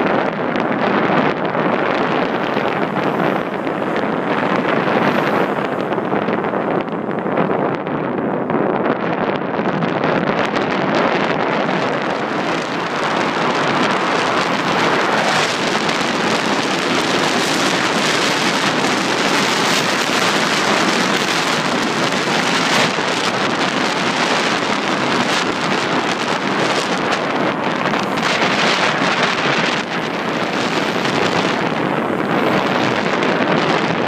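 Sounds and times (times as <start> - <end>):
high waves on a lake: 0.0 - 34.0
wind buffeting microphone: 0.0 - 34.0.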